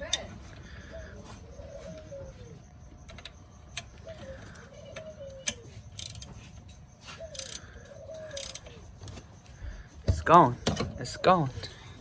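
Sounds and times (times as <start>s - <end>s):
pulley squeaking: 3.0s - 12.0s
wrench ratchet clicks: 5.4s - 6.3s, 7.4s - 7.6s, 8.3s - 9.2s.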